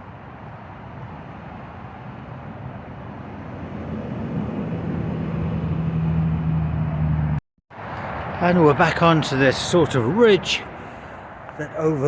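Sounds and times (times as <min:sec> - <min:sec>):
highway traffic roar: 0:00.0 - 0:12.0
low vehicle engine hum: 0:03.1 - 0:08.3.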